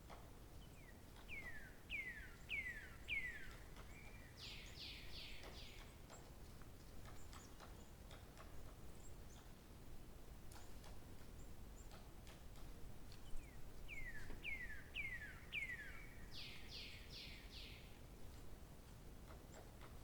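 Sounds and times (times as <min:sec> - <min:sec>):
songbird singing: 0:00.6 - 0:08.1, 0:13.1 - 0:18.5.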